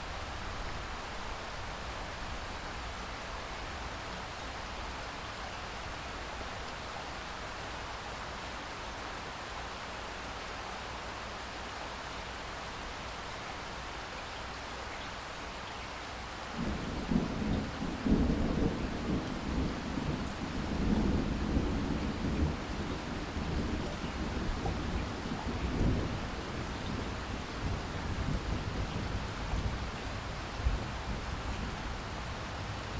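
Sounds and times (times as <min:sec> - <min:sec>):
thunder rumbling: 0:16.6 - 0:29.8.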